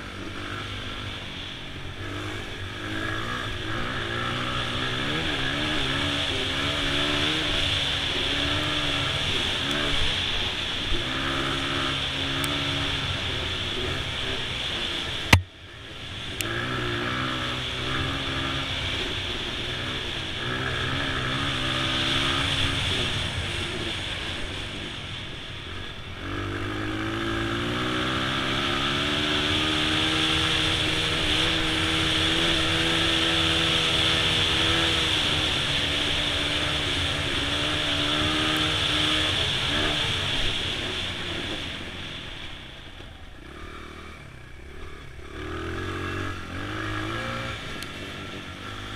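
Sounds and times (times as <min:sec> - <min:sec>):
dirt bike engine revving: 0:00.0 - 0:24.7, 0:25.7 - 0:42.5, 0:43.4 - 0:48.9.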